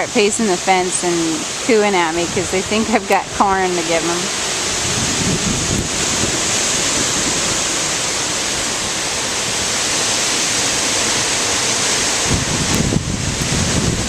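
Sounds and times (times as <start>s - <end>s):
strong gusty wind: 0.0s - 14.0s
wind buffeting microphone: 0.0s - 14.0s.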